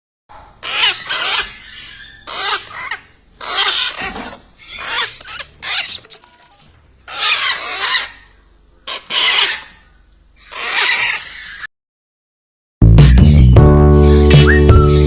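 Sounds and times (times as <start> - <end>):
wavering animal calls: 7.1 - 11.7.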